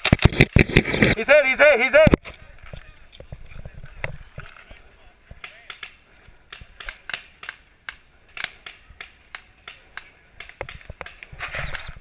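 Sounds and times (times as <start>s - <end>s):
paintball markers firing: 0.0s - 1.2s, 5.4s - 12.0s.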